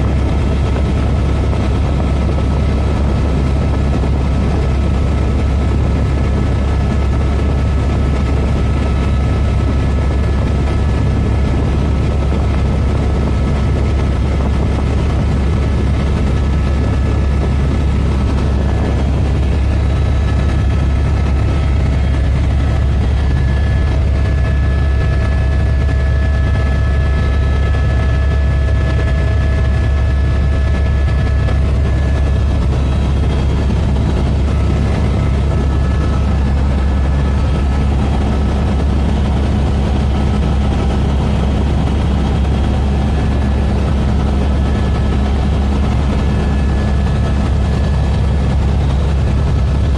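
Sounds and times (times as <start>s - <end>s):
helicopter rotor drone: 0.0s - 49.9s.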